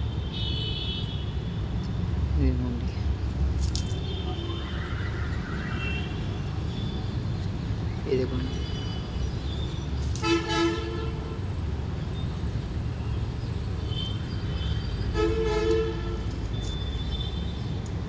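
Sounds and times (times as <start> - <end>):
vehicle horn toot: 10.2 - 11.3, 15.1 - 16.3.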